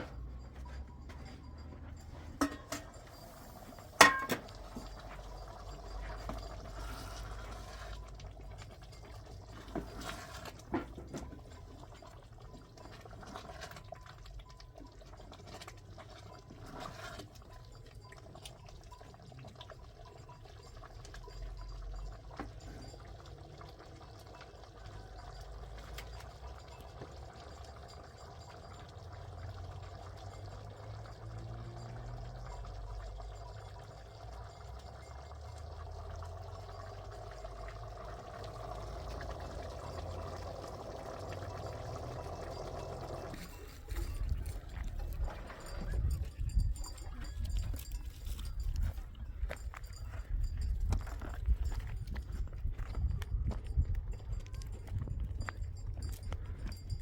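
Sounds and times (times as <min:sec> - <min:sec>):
water pouring into container: 0:03.0 - 0:46.6.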